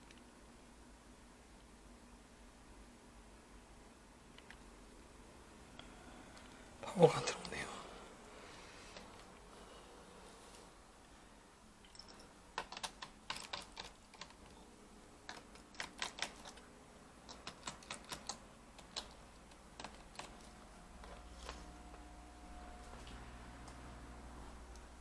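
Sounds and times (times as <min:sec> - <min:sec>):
laptop keyboard clicks: 0:11.9 - 0:14.6, 0:15.3 - 0:16.7, 0:17.3 - 0:21.6.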